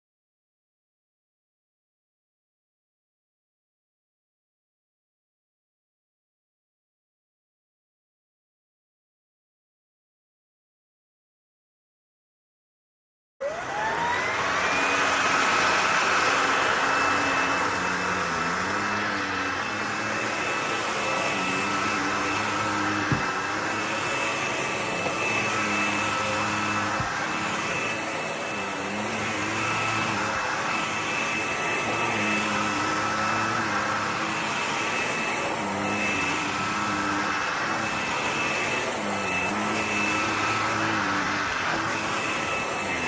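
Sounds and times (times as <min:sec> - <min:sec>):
vacuum cleaner running: 0:13.4 - 0:43.0.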